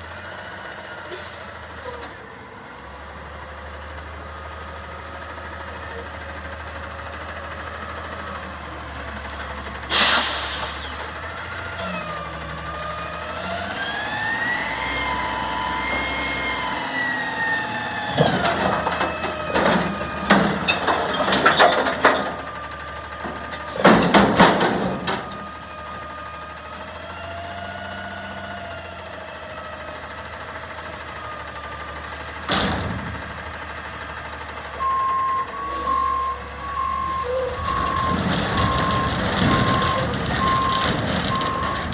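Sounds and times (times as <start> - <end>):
truck engine revving with whine: 9.4 - 20.7
air brake hiss: 9.9 - 11.1
metal clanks and bangs: 17.9 - 25.5, 35.8 - 41.9
reversing beeps: 34.8 - 41.9.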